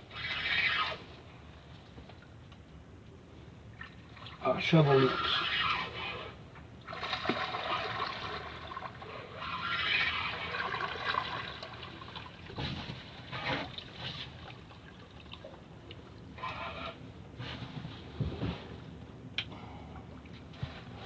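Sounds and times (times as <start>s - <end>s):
water trickling and splashing: 6.9s - 16.4s.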